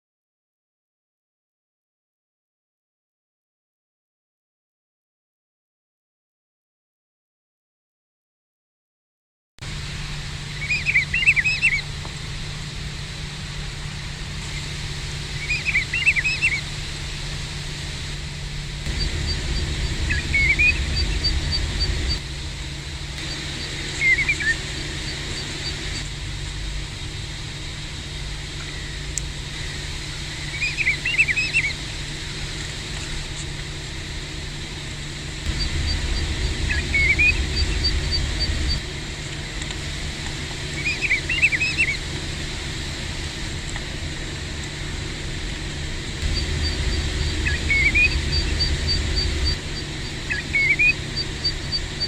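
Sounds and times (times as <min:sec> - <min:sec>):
plovers whistled calls: 0:10.4 - 0:11.9, 0:14.4 - 0:17.4, 0:18.9 - 0:22.3, 0:23.1 - 0:26.2, 0:28.4 - 0:33.6, 0:35.4 - 0:39.6, 0:40.4 - 0:42.1, 0:46.2 - 0:52.0
low rumble: 0:11.8 - 0:52.0.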